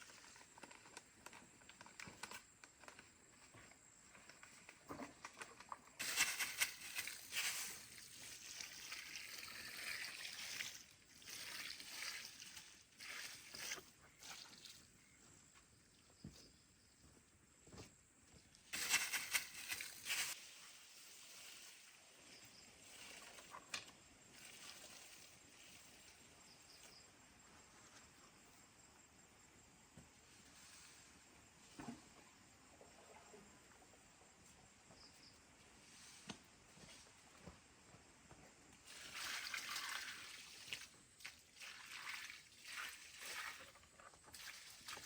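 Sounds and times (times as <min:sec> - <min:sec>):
water splashing onto soil: 0:06.0 - 0:14.8, 0:18.7 - 0:22.0, 0:38.8 - 0:45.0.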